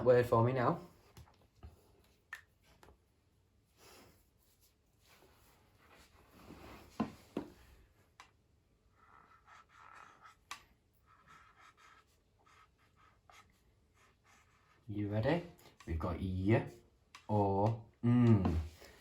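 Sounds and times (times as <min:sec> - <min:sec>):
marker pen scratching on whiteboard: 0:08.8 - 0:15.4.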